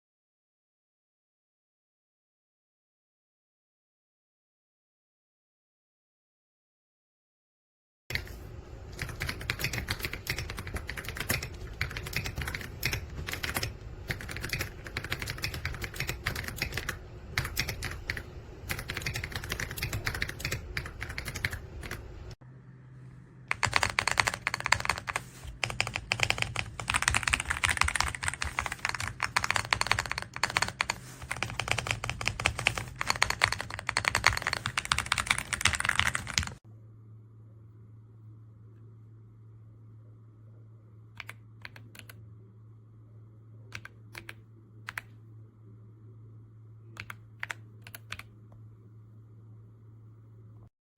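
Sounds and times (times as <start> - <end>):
steady low hum: 8.1 - 50.7
mechanical keyboard typing: 8.9 - 22.1, 23.5 - 36.6, 47.0 - 48.3.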